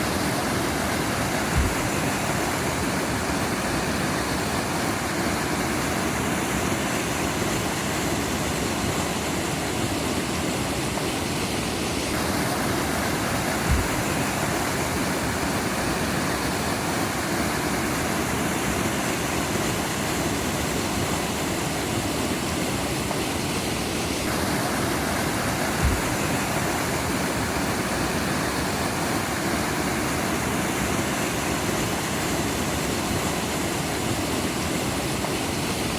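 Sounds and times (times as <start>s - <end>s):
stream running water: 0.0s - 35.9s
low thump: 13.7s - 14.0s, 25.8s - 26.2s.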